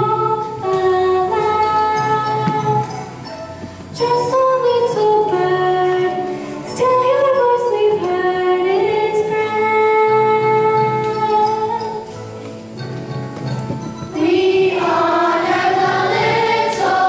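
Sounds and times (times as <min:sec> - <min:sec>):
woman singing slow melody: 0:00.0 - 0:03.0, 0:04.0 - 0:12.1
soft musical accompaniment: 0:00.0 - 0:17.0.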